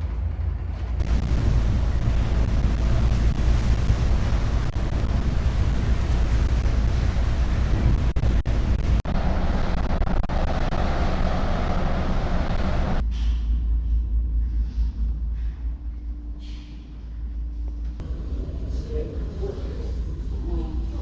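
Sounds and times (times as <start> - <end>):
ferry engine low rumble: 0.0 - 21.0
rushing sea noise: 1.0 - 13.0
wind buffeting microphone: 1.0 - 13.0.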